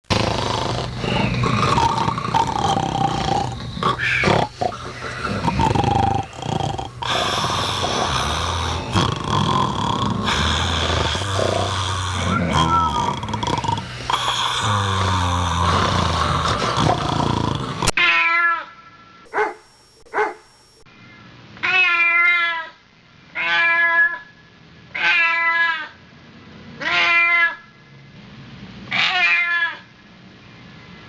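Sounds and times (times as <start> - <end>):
cat meowing: 18.0 - 18.7, 21.6 - 22.7, 23.4 - 24.2, 25.0 - 25.9, 26.8 - 27.6, 28.9 - 29.8.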